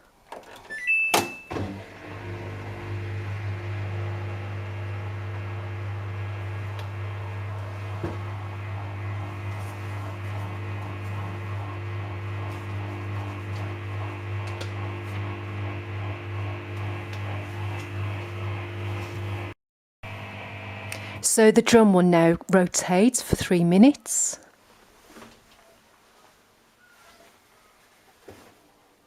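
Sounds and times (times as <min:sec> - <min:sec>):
washing machine motor hum: 0:00.8 - 0:21.4.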